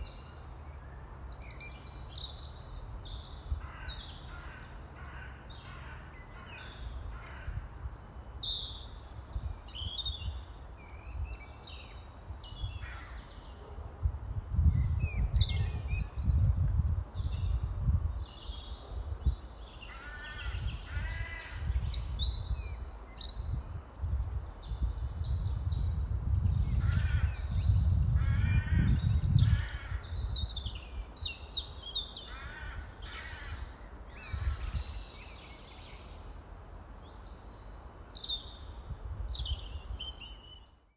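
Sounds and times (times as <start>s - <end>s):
crow-like caws: 3.6s - 7.6s, 19.9s - 21.8s, 28.2s - 30.1s, 32.3s - 33.8s.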